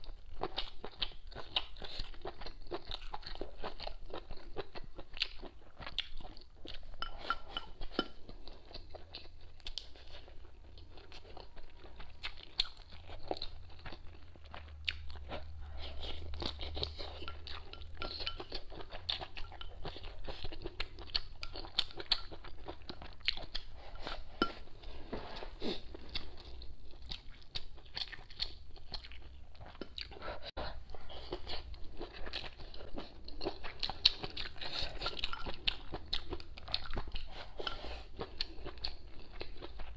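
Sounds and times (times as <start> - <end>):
person chewing crunchy food: 0.0 - 39.9.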